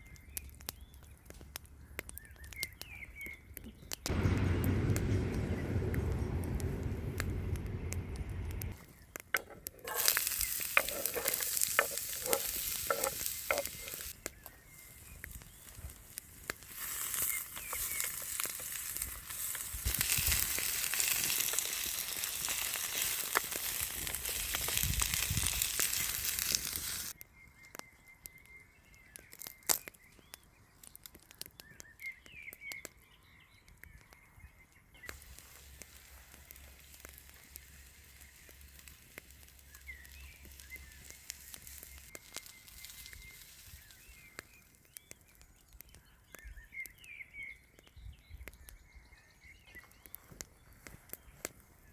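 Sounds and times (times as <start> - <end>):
faint clicks and crackles: 0.0 - 49.0, 49.6 - 51.9
food sizzling as it fries: 9.7 - 27.2, 35.1 - 44.4.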